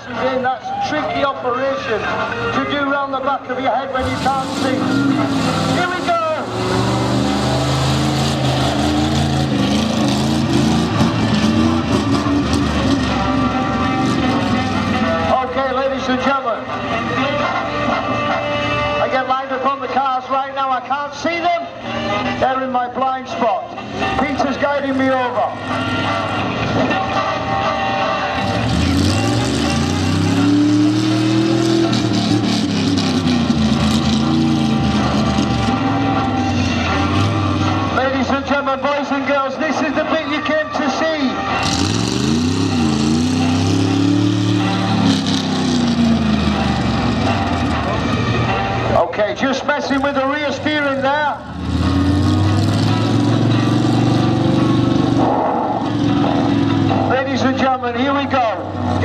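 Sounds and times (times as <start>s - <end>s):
monster truck engine running: 4.0s - 15.7s, 28.3s - 38.2s, 41.4s - 49.0s, 49.8s - 59.0s.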